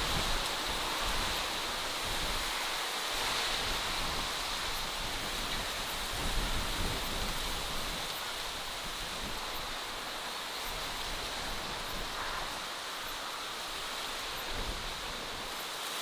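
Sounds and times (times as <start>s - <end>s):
rushing hiss: 0.0s - 16.0s.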